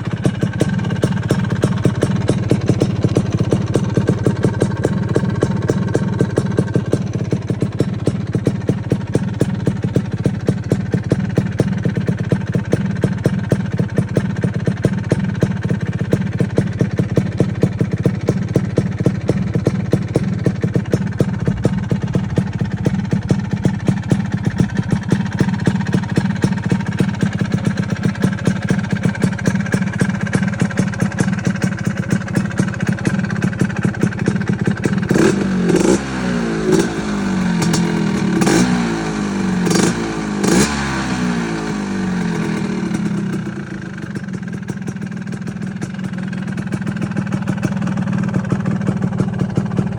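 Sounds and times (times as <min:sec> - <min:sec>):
scooter engine idling and revving: 0:00.0 - 0:49.9.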